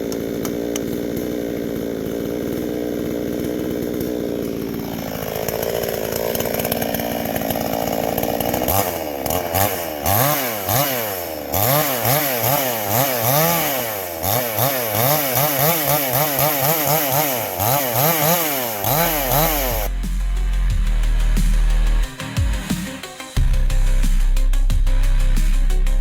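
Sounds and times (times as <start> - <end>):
chainsaw revving: 0.0 - 26.0
electronic music: 19.3 - 26.0.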